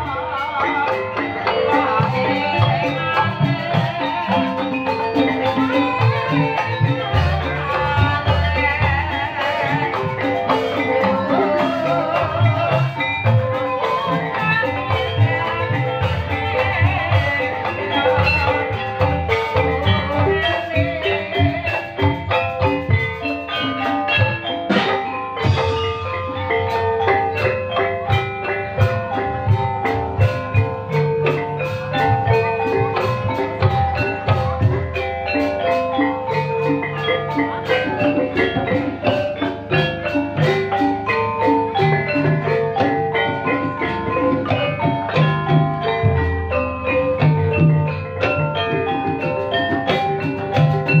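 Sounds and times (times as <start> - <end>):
drums: 0.0 - 51.0
fast mallet percussion: 0.0 - 51.0.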